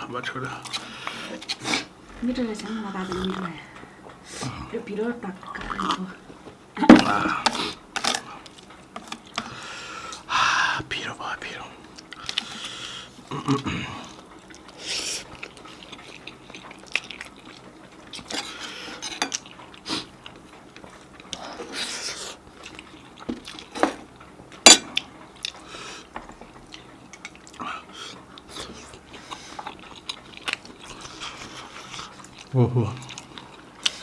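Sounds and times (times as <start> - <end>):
cutlery clinking on plates: 18.3 - 19.4, 24.7 - 25.0.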